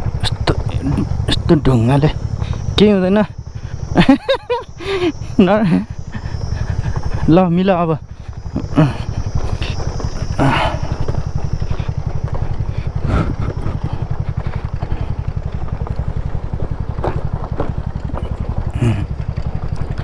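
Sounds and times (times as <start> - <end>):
scooter engine running: 0.0 - 20.0
knocks and rattles over stones: 11.2 - 20.0.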